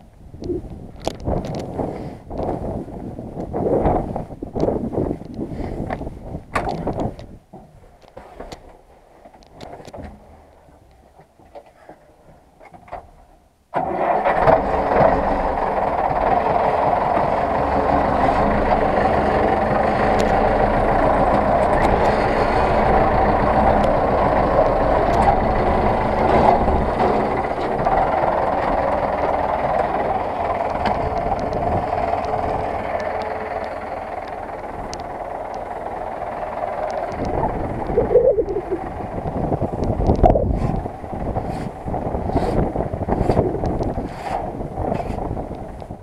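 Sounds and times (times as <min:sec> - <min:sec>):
diesel tractor engine running: 0:13.8 - 0:46.0.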